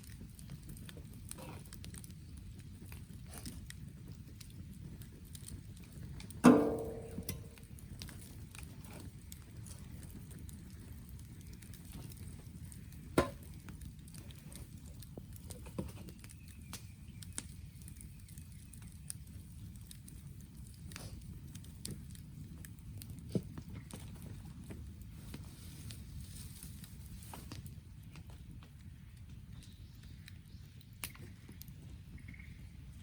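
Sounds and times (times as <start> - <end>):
axe striking firewood: 6.4 - 7.6, 13.2 - 13.6.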